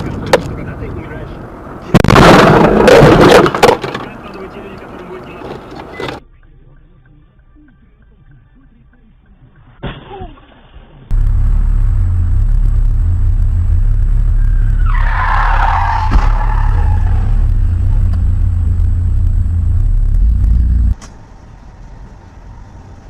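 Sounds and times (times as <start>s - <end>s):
car driving rumble: 0.0s - 23.0s
tyre screech: 14.4s - 17.5s.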